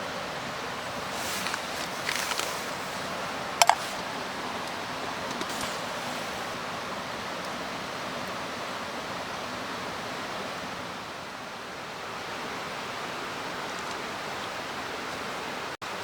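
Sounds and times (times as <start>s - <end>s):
stream rushing: 0.0s - 16.0s.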